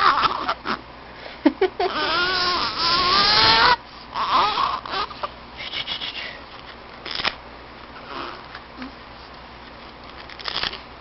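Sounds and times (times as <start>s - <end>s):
baby squealing and whimpering: 0.0s - 0.8s, 1.9s - 5.3s, 8.0s - 8.4s.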